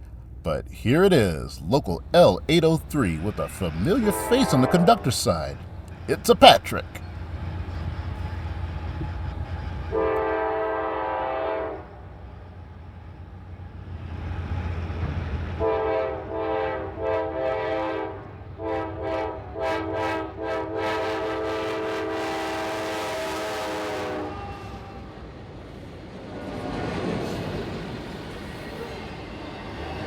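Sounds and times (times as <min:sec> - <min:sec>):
train air horn blasts: 0:02.8 - 0:07.0, 0:09.2 - 0:12.0, 0:15.6 - 0:25.1.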